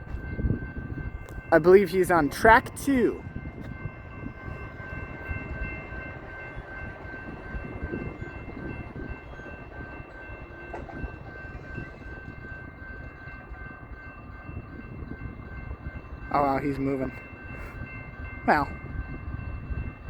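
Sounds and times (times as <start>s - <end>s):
diesel locomotives rumbling: 0.0s - 20.0s.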